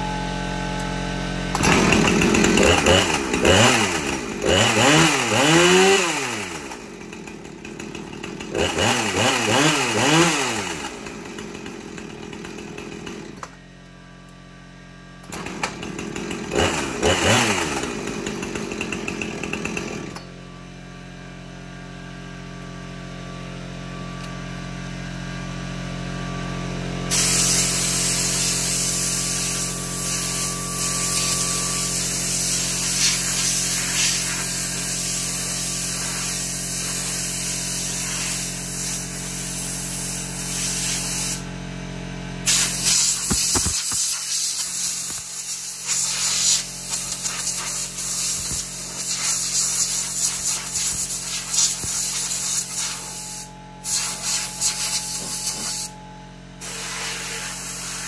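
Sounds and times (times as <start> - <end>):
chainsaw engine revving and idling: 0.0 - 58.0
bright hiss: 27.1 - 34.6, 42.5 - 55.9.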